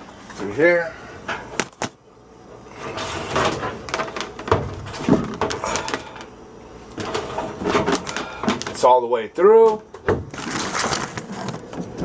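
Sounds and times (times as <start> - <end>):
plastic tubing sliding and rubbing: 10.3 - 12.0.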